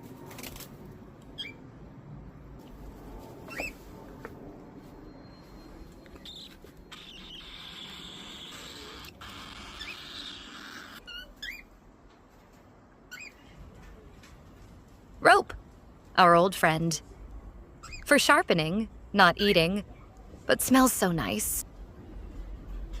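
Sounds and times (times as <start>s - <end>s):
parrots chirping: 6.2s - 11.7s.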